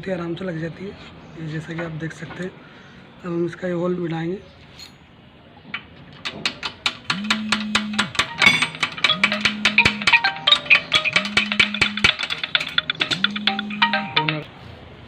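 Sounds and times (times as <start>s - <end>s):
background music with quick beat: 7.2s - 14.4s.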